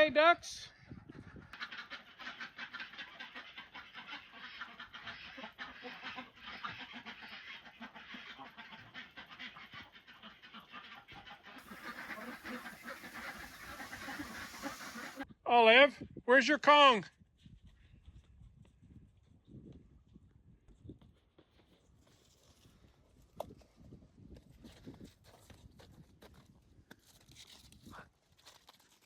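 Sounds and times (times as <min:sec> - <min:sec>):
ducks quacking: 0:01.1 - 0:15.3.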